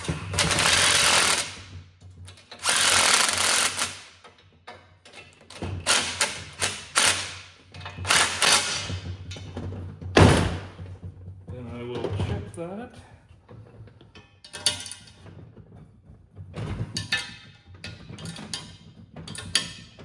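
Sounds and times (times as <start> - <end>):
impact driver running: 0.0 - 1.8, 2.5 - 4.2, 5.8 - 9.1.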